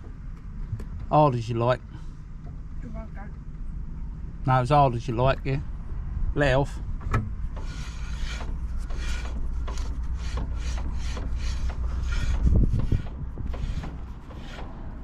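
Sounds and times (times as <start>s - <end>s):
steady low rumble: 0.0s - 15.0s
brake pads rasping on disc: 7.0s - 15.0s.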